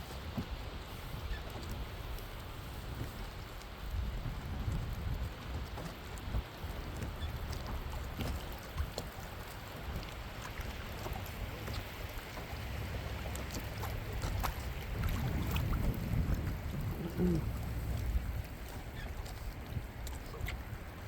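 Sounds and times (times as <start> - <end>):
wind on microphone: 0.0 - 9.2, 9.8 - 21.0
boat engine rumble: 0.0 - 21.0
water noise: 0.0 - 21.0.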